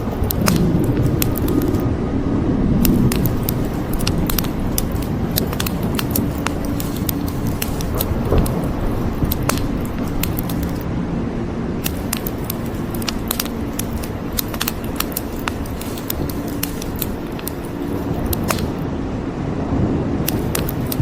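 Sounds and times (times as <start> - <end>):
wood fire crackling: 0.0 - 1.8, 2.8 - 10.9, 11.8 - 18.8, 20.2 - 21.0
rain falling: 2.8 - 10.8.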